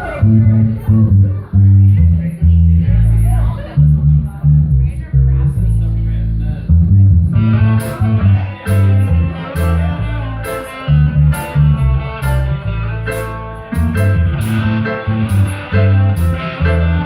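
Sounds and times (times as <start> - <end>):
bass guitar: 0.0 - 17.0
electric guitar: 7.2 - 17.0.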